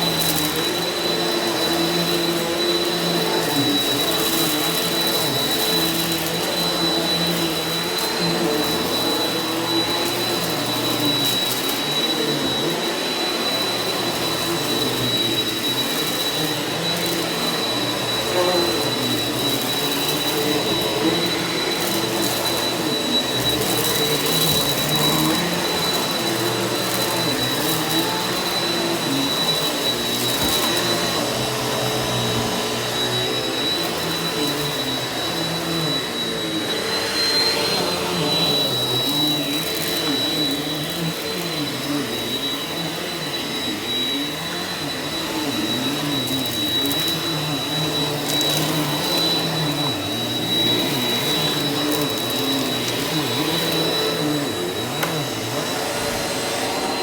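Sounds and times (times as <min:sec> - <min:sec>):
upright vacuum cleaner running: 0:00.0 - 0:57.0.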